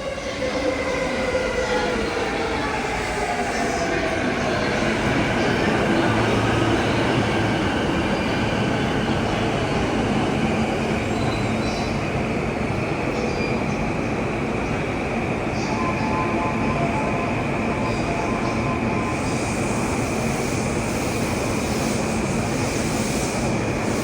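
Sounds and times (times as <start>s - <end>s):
train rumbling on rails: 0.0s - 24.0s.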